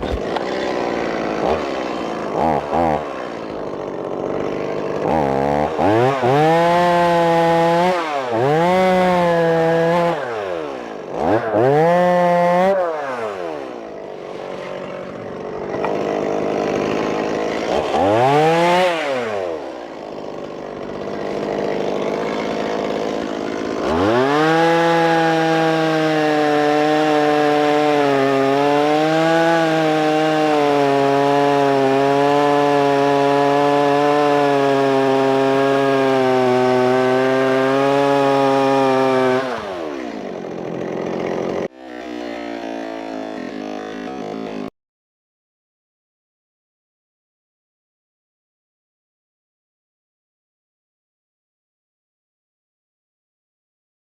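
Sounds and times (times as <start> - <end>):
chainsaw cutting tree limb: 0.0 - 44.7
chainsaw idling and revving: 0.0 - 44.8.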